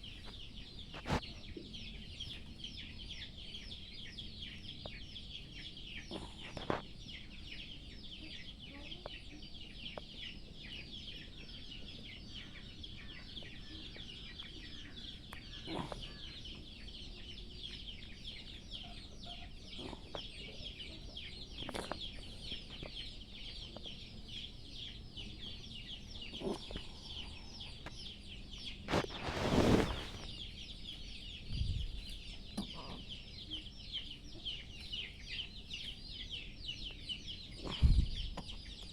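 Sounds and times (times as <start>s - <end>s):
young birds chirping: 0.0s - 38.9s
rustle: 28.9s - 30.5s.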